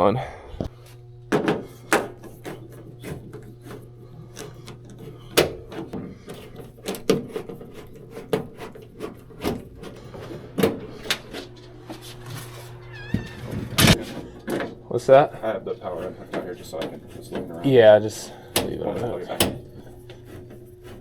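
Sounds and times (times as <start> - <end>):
steady low hum: 0.0 - 21.0
tools knocking and clunking: 1.3 - 12.5.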